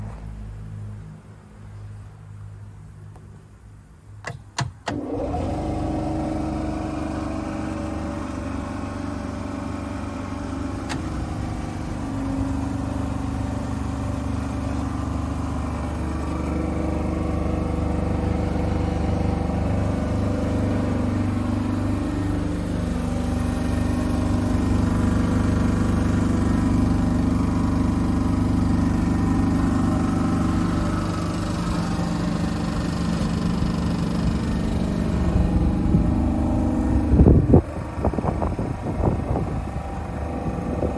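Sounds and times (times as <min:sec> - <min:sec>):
compressor clicks: 0:04.2 - 0:05.4
piston compressor running: 0:04.9 - 0:40.9.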